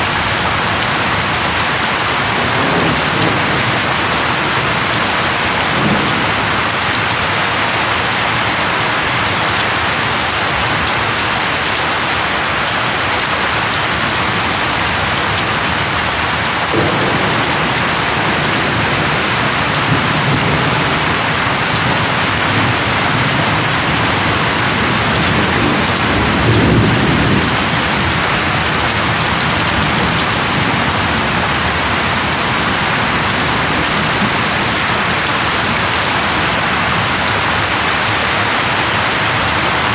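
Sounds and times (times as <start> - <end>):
heavy rain hissing: 0.0 - 39.9
low thunder rumble: 0.2 - 7.5, 14.2 - 37.9.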